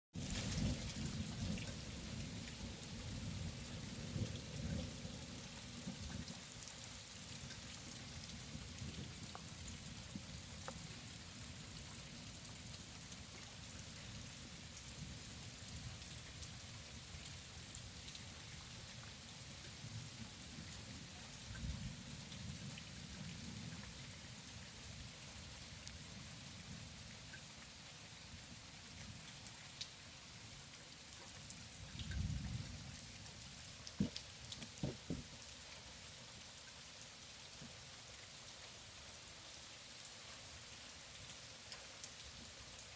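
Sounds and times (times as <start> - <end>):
steady rain: 0.2 - 42.9
drops ticking on a surface: 33.9 - 35.4.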